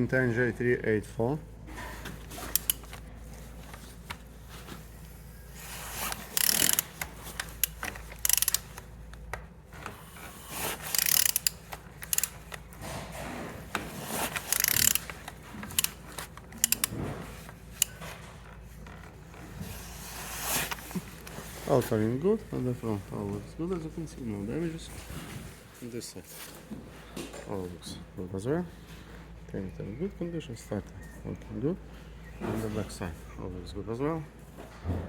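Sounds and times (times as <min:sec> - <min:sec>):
engine clicking and ratcheting: 0:06.2 - 0:08.8, 0:14.4 - 0:17.0.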